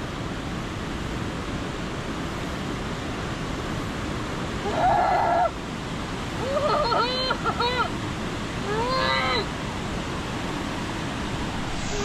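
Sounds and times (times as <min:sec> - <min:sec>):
waterfall rushing: 0:04.1 - 0:12.0
person crying out: 0:08.7 - 0:09.5.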